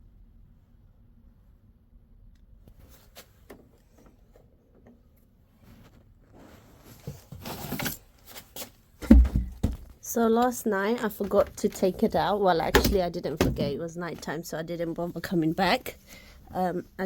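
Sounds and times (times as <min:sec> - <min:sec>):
handling clicks and rustling: 0:06.8 - 0:15.8
heavy thump: 0:09.0 - 0:09.9.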